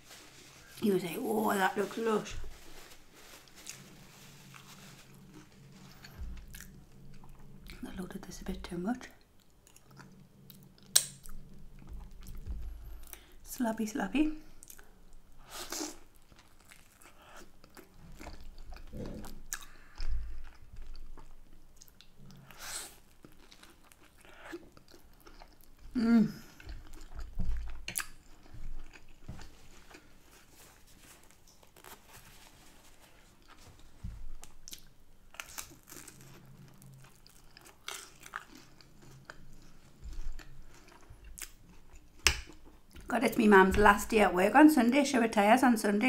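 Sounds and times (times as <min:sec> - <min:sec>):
biting and chewing food: 0:15.7 - 0:32.1, 0:33.3 - 0:43.1.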